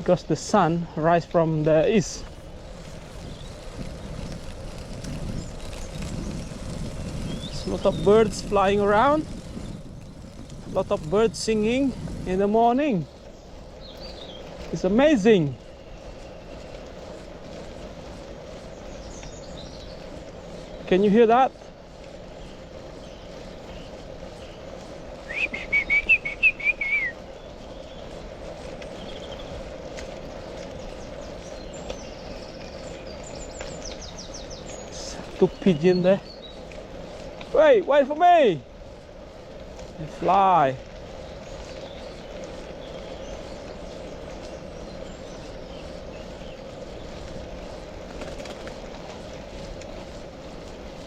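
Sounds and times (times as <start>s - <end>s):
birds chirping: 0.0s - 51.0s
steady outdoor noise: 0.0s - 51.0s
faint bird chirp: 21.8s - 37.2s
songbird warbling: 22.4s - 28.2s.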